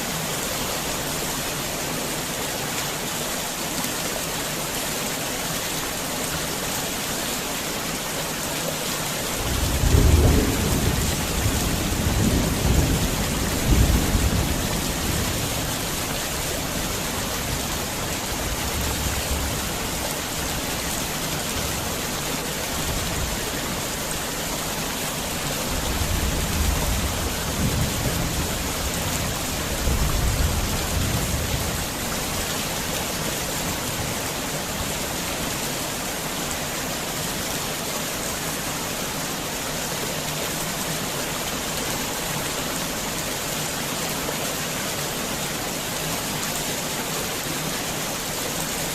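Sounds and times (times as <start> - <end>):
heavy rain hissing: 0.0 - 48.9
thunder rumbling: 9.4 - 15.7.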